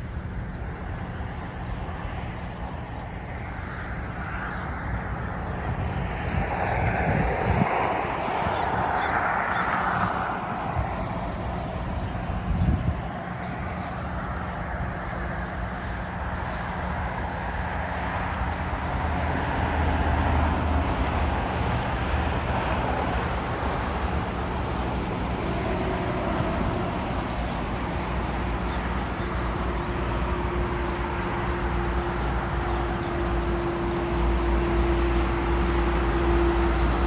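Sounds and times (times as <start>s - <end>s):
distant jet aircraft rumble: 0.0s - 37.0s
traffic rumble: 0.0s - 37.0s
wind on microphone: 1.9s - 15.0s.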